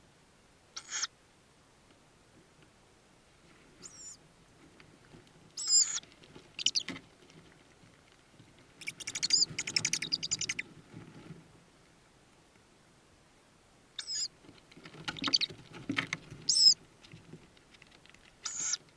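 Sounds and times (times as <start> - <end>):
soft rustling of birds: 0.0 - 18.9
owl chicks cheeping: 0.8 - 1.1, 3.8 - 4.2, 5.6 - 6.0, 6.6 - 6.9, 8.8 - 10.7, 14.0 - 14.4, 15.1 - 15.6, 16.4 - 16.8, 18.4 - 18.9.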